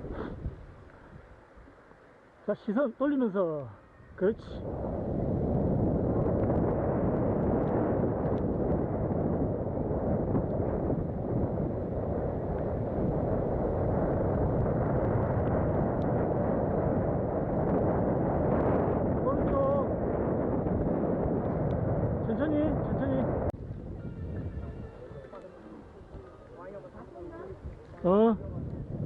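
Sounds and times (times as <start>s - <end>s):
wind buffeting microphone: 0.0s - 1.6s, 4.0s - 29.0s
bike tyres on dirt trail: 4.9s - 19.2s.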